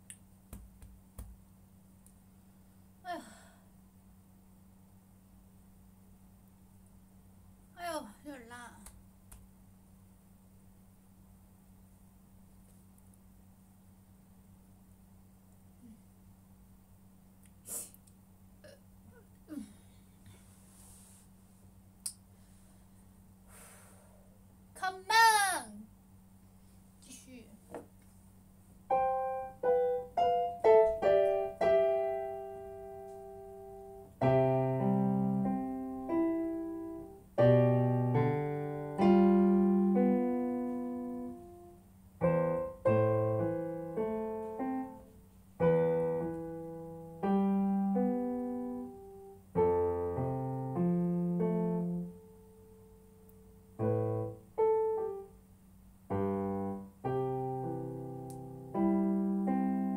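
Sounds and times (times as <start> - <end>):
piano notes and chords: 28.9 - 52.4, 56.1 - 59.9.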